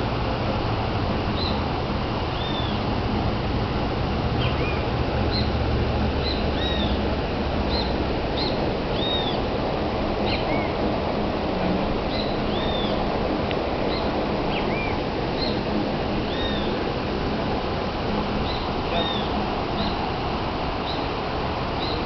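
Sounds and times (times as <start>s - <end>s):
waterfall rushing: 0.0s - 22.0s
bird whistling: 6.2s - 7.0s, 7.7s - 9.4s, 12.1s - 13.0s, 13.9s - 15.6s, 18.5s - 20.0s.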